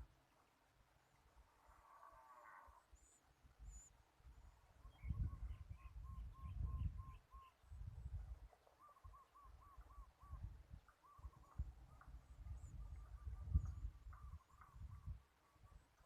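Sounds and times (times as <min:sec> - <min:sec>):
bird chirps: 0:02.8 - 0:07.8, 0:08.6 - 0:16.0
bird calling: 0:08.6 - 0:14.8.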